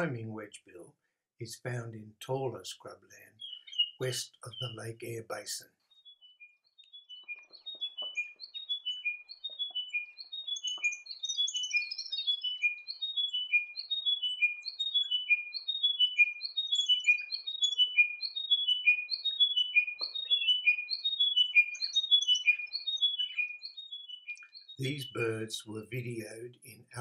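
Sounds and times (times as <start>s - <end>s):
bird singing descending phrase: 6.0s - 26.4s.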